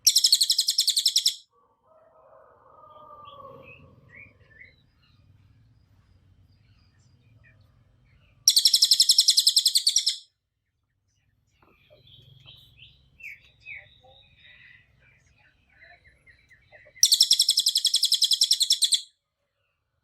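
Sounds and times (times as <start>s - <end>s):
bird rapid high trill: 0.0s - 1.4s, 8.5s - 10.2s, 17.0s - 19.1s.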